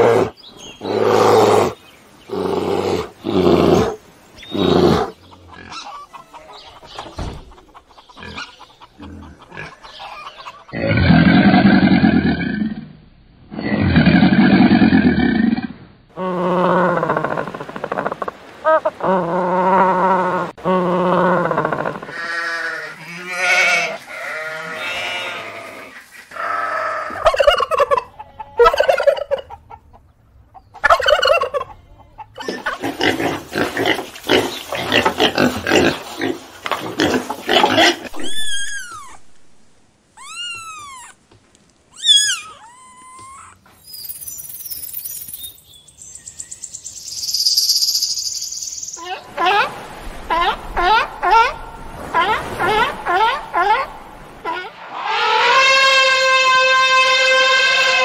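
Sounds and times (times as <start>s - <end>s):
poultry clucking: 4.4s - 10.9s, 27.0s - 38.5s
high arching chirps: 40.1s - 41.2s, 41.9s - 49.2s.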